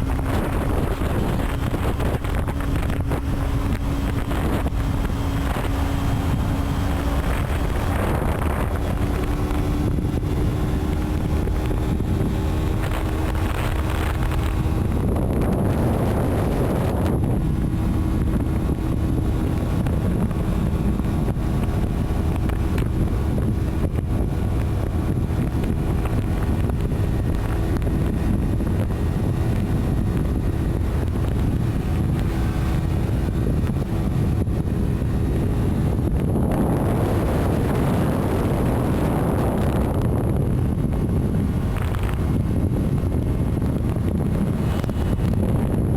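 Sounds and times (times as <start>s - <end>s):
road noise rumble: 0.0s - 45.9s
wind buffeting microphone: 0.0s - 45.9s.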